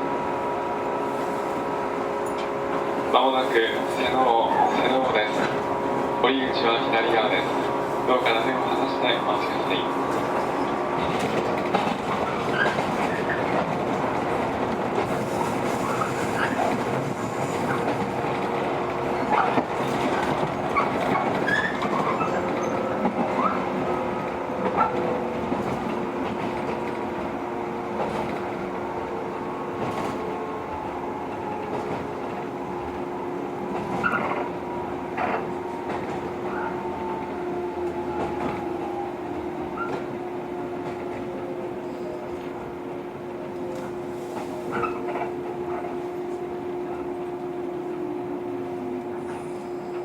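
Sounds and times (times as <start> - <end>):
train rolling rumble: 0.0 - 50.0
rail-joint clicks: 2.2 - 2.9, 3.9 - 5.8, 6.6 - 42.7, 43.4 - 47.4
wheel and brake squeals: 12.2 - 13.6, 20.7 - 23.6, 34.0 - 34.4, 44.1 - 45.8, 49.2 - 50.0.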